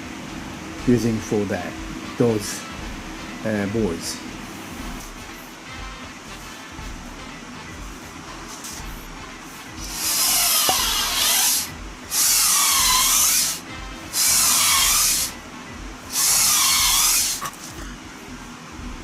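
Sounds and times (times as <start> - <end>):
handheld power tool working wood: 9.8 - 15.4, 16.1 - 17.8.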